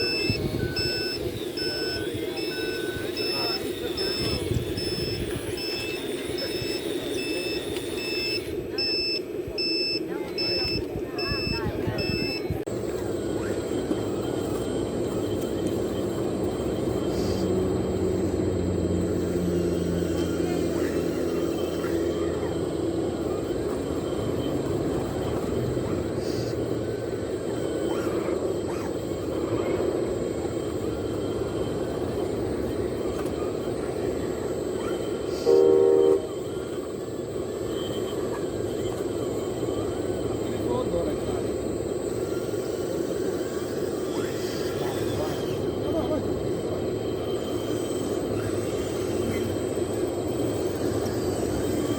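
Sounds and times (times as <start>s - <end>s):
model machinery droning: 0.0s - 51.9s
horn blast: 35.5s - 36.4s.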